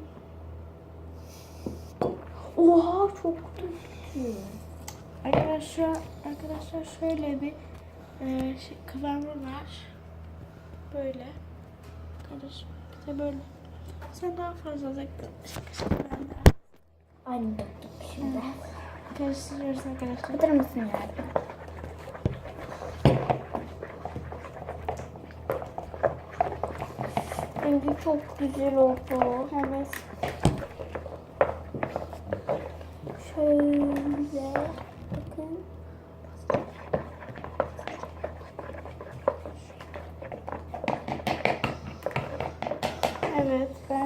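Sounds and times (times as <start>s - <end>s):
steady low hum: 0.0s - 44.0s
slime squelching in a bowl: 1.6s - 9.6s, 17.6s - 44.0s.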